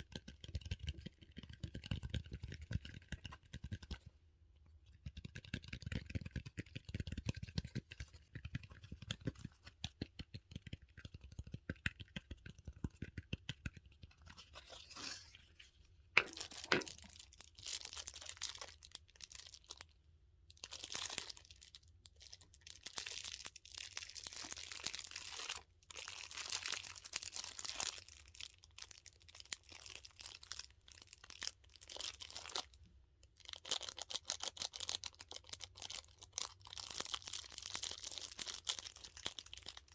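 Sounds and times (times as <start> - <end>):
plastic wrap crinkling: 16.2 - 19.8.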